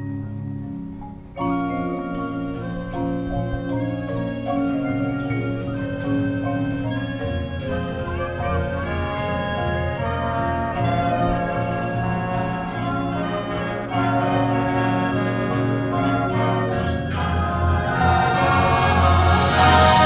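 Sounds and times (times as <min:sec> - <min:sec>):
marching band playing: 0:01.5 - 0:20.0
sharp percussion strikes: 0:14.5 - 0:20.0.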